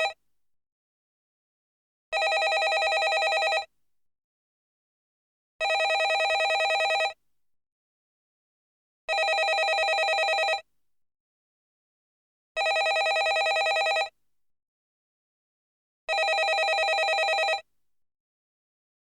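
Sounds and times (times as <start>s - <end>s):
telephone ringing with trill: 2.2s - 3.7s, 5.6s - 7.2s, 9.1s - 10.6s, 12.6s - 14.1s, 16.1s - 17.6s.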